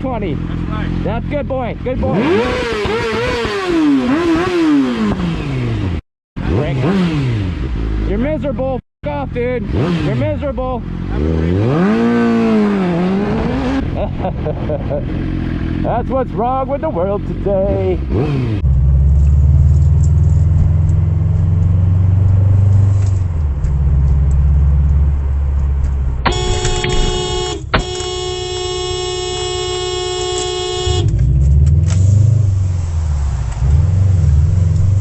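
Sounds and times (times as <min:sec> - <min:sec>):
car horn held: 0:26.2 - 0:31.3.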